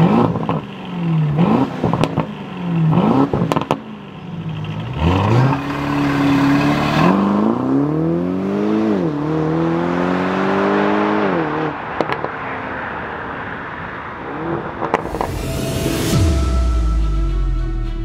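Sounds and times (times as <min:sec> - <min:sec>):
car engine accelerating: 0:00.0 - 0:12.3
music: 0:15.0 - 0:18.0.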